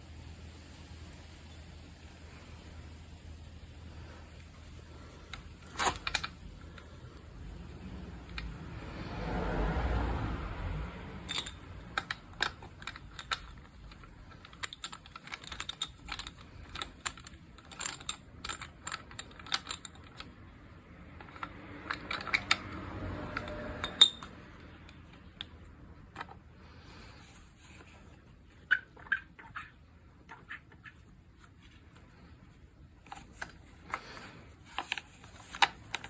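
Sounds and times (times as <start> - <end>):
hand tools and metal parts clicking: 5.1 - 6.9, 11.2 - 26.4, 33.0 - 36.0.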